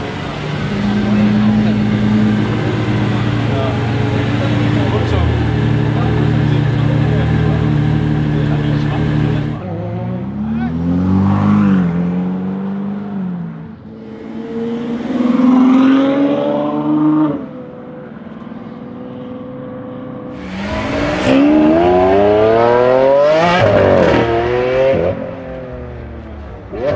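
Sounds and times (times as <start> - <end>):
car engine revving: 0.0 - 13.3, 20.0 - 26.9.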